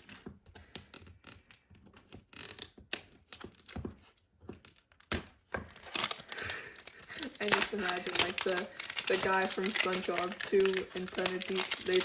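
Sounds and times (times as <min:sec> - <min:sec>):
plastic packaging crinkling: 0:05.6 - 0:12.0.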